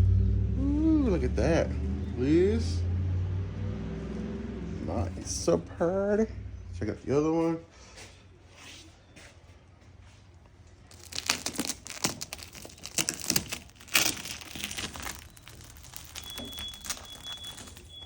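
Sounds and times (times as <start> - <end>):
plastic film peeling: 10.8 - 18.0.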